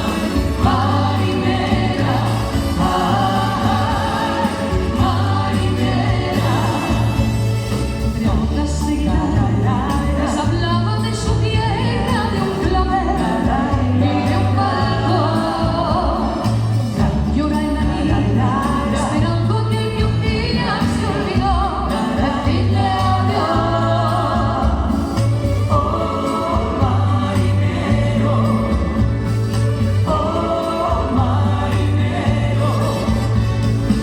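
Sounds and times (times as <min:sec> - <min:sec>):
band accompaniment: 0:00.0 - 0:34.0
vocal group singing in harmony: 0:00.0 - 0:34.0.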